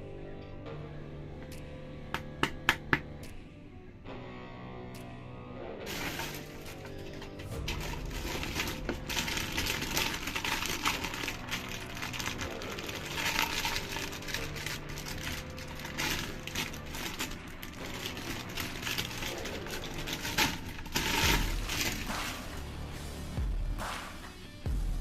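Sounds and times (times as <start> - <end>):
packaging crinkling: 5.9 - 22.6
plastic toys clicking and rattling: 5.9 - 22.6.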